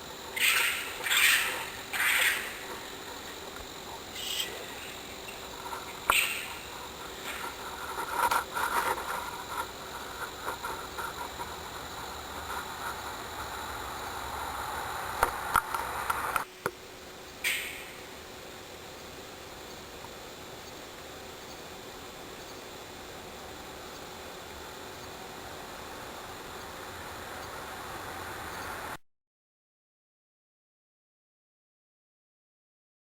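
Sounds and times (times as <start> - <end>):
wild animal screeches: 0.3 - 2.9, 4.1 - 7.6.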